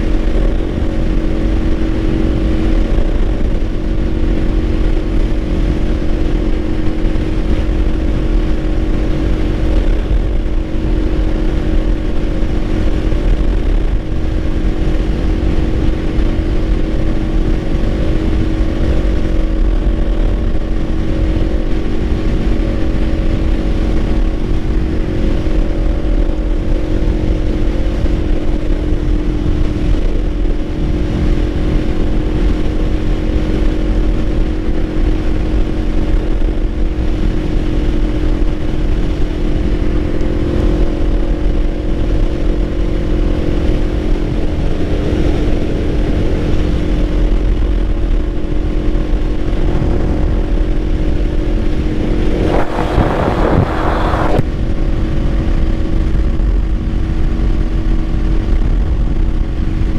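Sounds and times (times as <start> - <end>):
motorcycle engine cruising: 46.0 - 54.4
rushing noise: 47.6 - 54.6.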